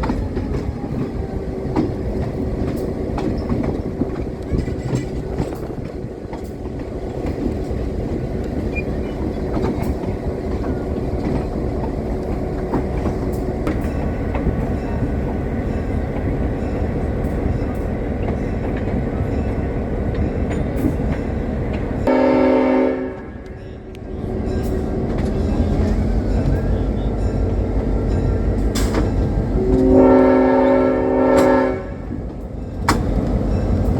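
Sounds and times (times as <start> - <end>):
wheels clicking over rail joints: 0.0 - 22.1, 23.4 - 29.9, 31.4 - 33.9
train rumbling on track: 0.0 - 33.9
train horn blast: 22.0 - 23.6, 29.6 - 32.2.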